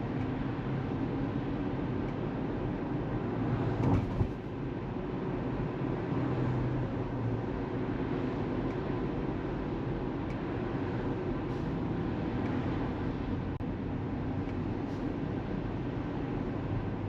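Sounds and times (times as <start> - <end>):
tyre and road noise: 0.0 - 17.0
brief thump: 3.8 - 4.4.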